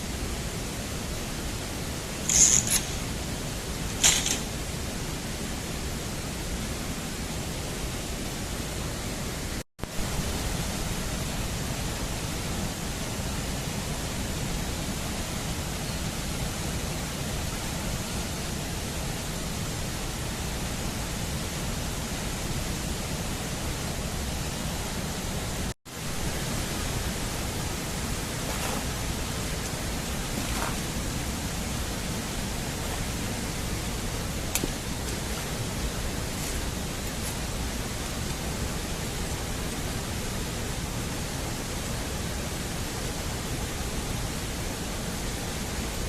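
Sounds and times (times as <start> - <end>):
steady rushing noise: 16.4 - 46.0.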